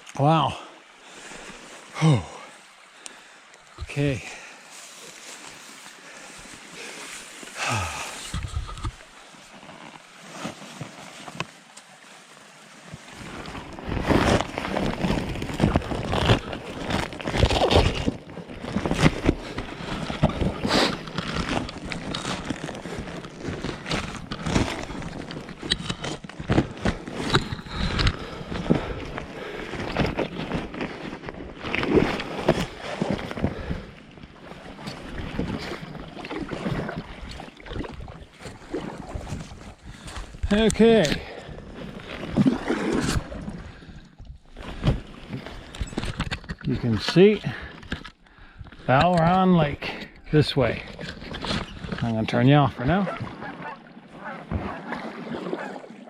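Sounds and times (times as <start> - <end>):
paddle splashes: 0.0 - 45.8, 50.0 - 56.0
wind on microphone: 8.2 - 9.0.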